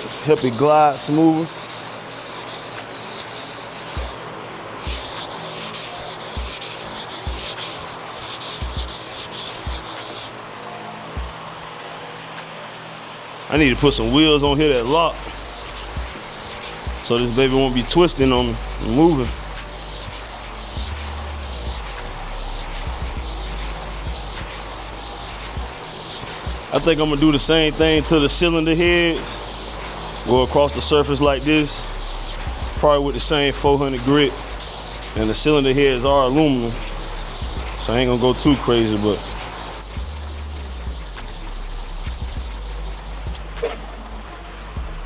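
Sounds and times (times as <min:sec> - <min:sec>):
sandpaper rasping on metal: 0:00.0 - 0:10.3, 0:13.7 - 0:43.8
dull low thuds: 0:16.9 - 0:17.1, 0:18.1 - 0:24.6, 0:25.5 - 0:25.8, 0:27.8 - 0:29.3, 0:30.4 - 0:31.6, 0:32.4 - 0:33.9, 0:37.2 - 0:38.8, 0:39.8 - 0:43.7.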